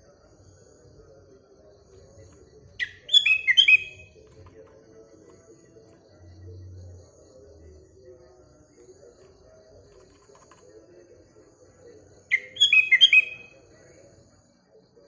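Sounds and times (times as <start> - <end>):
faint low background murmur: 0.0 - 15.0
bird chirping phrase: 2.8 - 4.2, 12.3 - 13.9.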